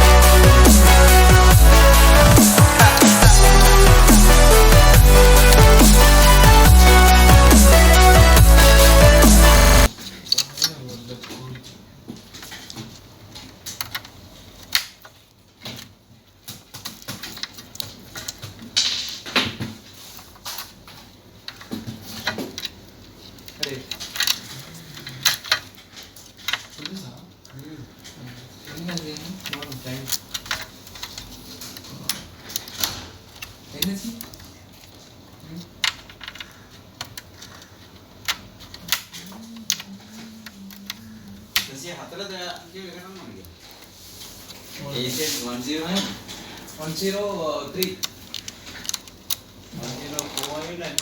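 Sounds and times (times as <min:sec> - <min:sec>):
computer parts clicking and tapping: 0:12.5 - 0:19.6, 0:35.7 - 0:41.8, 0:47.6 - 0:49.5.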